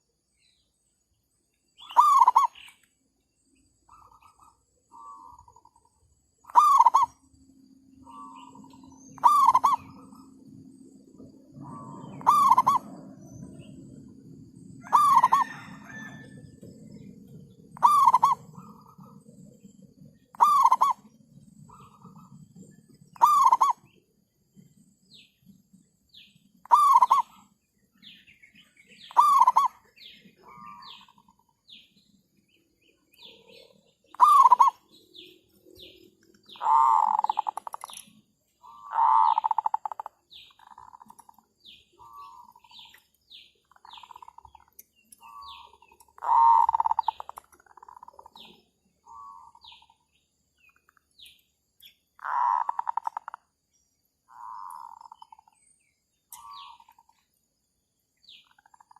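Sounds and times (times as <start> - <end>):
small birds chirping: 0.0 - 58.9
doves cooing: 1.8 - 2.6, 3.9 - 24.0, 26.5 - 27.6, 28.5 - 31.4, 33.2 - 38.0, 38.6 - 43.0, 43.6 - 50.0, 52.2 - 53.4, 54.3 - 55.6.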